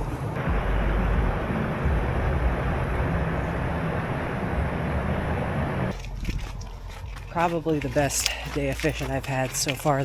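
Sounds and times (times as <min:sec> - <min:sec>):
steady rushing noise: 0:00.0 - 0:06.0
deep rumble: 0:00.0 - 0:09.3.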